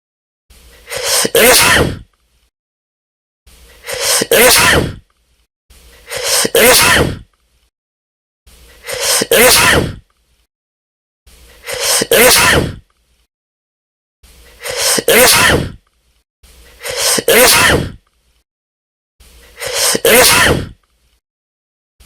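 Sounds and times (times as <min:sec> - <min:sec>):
person sneezing: 0:00.8 - 0:02.1, 0:03.8 - 0:05.0, 0:06.0 - 0:07.3, 0:08.8 - 0:10.0, 0:11.6 - 0:12.8, 0:14.6 - 0:15.8, 0:16.8 - 0:18.0, 0:19.5 - 0:20.8.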